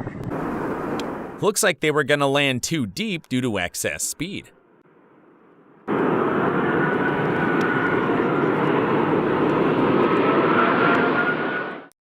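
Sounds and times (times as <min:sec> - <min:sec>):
airliner engines running: 0:00.0 - 0:01.6, 0:02.6 - 0:12.0
high rising whine: 0:04.5 - 0:11.9
steady rushing noise: 0:04.9 - 0:11.6.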